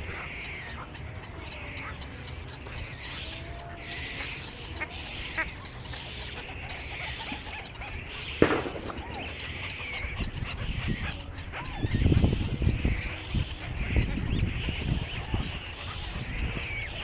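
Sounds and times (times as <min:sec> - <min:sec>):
small birds chirping: 0:00.0 - 0:17.0
sharp knock: 0:08.4 - 0:09.5.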